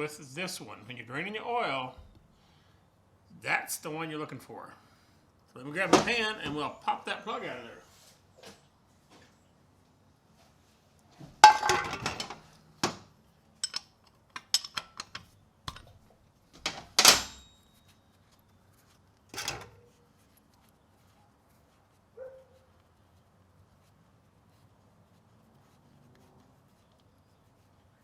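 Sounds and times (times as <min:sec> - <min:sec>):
tools clattering and clinking: 0:05.9 - 0:06.2, 0:11.4 - 0:17.8, 0:19.4 - 0:19.9
metal clank: 0:11.4 - 0:13.0, 0:16.6 - 0:17.6, 0:19.4 - 0:19.8.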